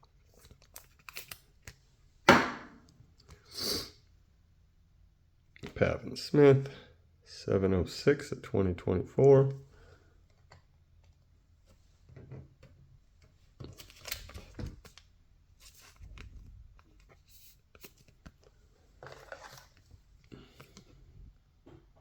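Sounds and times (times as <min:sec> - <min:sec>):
cards and plastic sleeves rustling: 0:00.2 - 0:01.9, 0:13.2 - 0:21.0.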